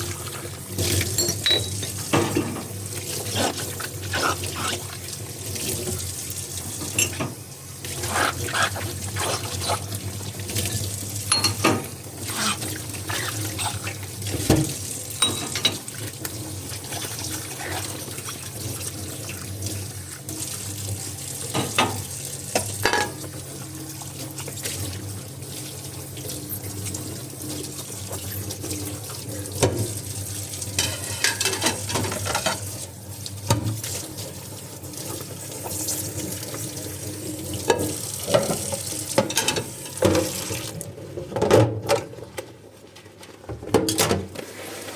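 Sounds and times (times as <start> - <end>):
tap water running into sink: 0.0 - 42.1
dishware clinking and knocking: 1.1 - 2.7, 6.9 - 7.4, 11.3 - 12.0, 15.2 - 15.8, 22.9 - 23.2, 30.8 - 32.6.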